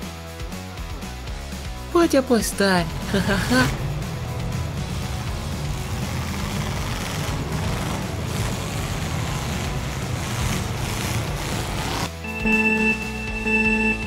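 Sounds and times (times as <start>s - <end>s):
race car engine rumbling: 2.8s - 12.1s
steady electronic tones: 12.1s - 14.0s.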